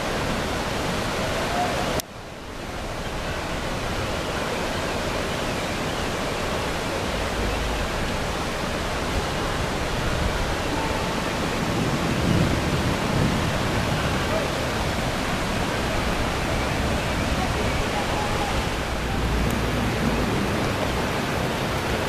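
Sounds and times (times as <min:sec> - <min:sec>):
churning water: 0:00.0 - 0:22.0
storm wind rushing: 0:11.3 - 0:22.0.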